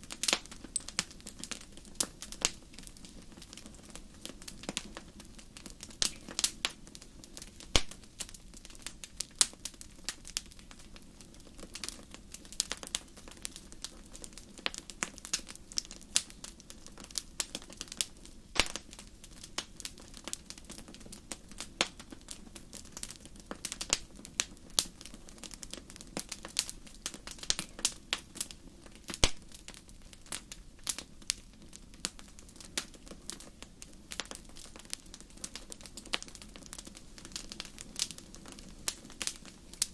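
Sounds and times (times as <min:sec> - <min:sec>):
wood fire pops and snaps: 0:00.0 - 0:39.9.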